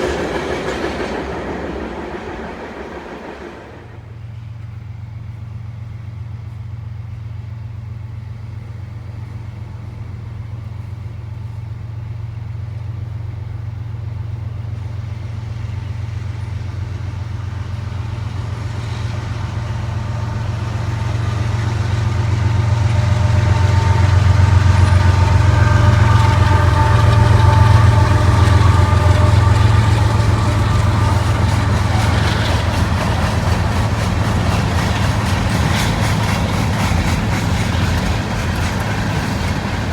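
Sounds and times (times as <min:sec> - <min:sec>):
locomotive engines droning: 0:00.0 - 0:39.9
engine whine: 0:15.9 - 0:39.9.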